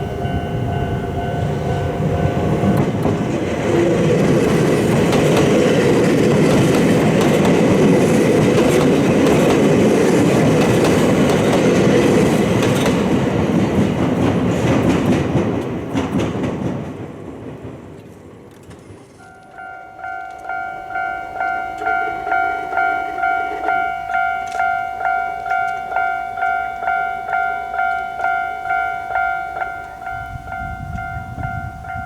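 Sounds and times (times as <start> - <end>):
crossing warning bell dinging: 0.0 - 14.3, 19.1 - 32.0
train wheels clattering on rail joints: 0.3 - 32.0.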